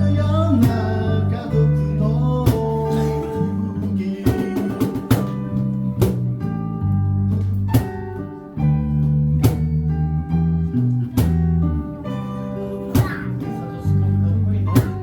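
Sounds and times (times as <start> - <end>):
bass notes: 0.0 - 15.0
strummed guitar chords: 0.0 - 15.0
sharp drum beat: 2.4 - 3.1, 3.8 - 6.4.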